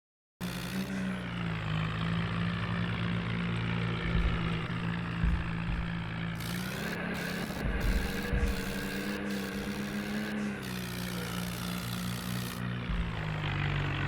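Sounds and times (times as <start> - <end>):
tractor diesel engine running: 0.4 - 14.0.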